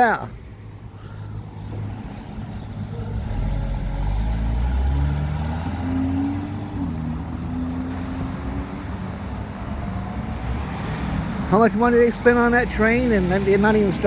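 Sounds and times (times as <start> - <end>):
vehicle engine revving: 3.0 - 11.3.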